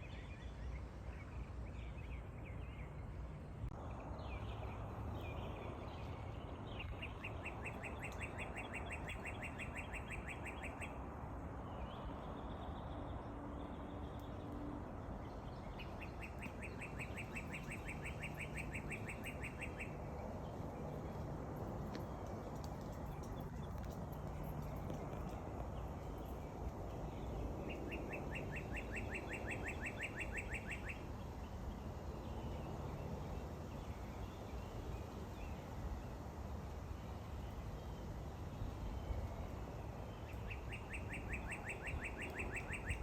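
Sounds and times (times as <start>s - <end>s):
outdoor background hiss: 0.0s - 43.0s
bird chirps and trills: 15.3s - 20.0s, 40.2s - 43.0s.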